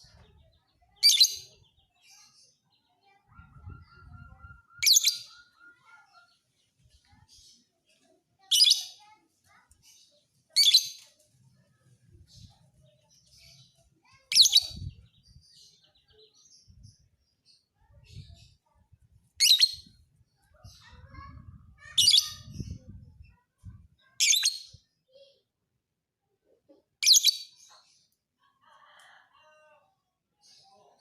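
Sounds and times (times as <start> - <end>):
faint bird twittering: 0.0 - 7.8
bird shrill chirps: 3.3 - 6.4.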